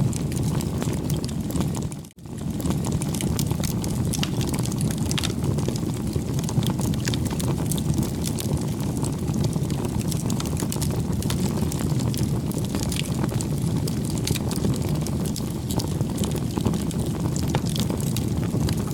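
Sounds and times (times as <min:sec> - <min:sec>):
bonfire rumble: 0:00.0 - 0:18.9
burning wood crackling and popping: 0:00.0 - 0:18.9.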